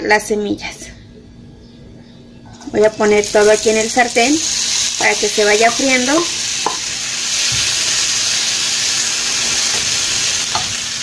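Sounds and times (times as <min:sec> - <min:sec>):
vegetables sizzling in oil: 0:02.7 - 0:11.0.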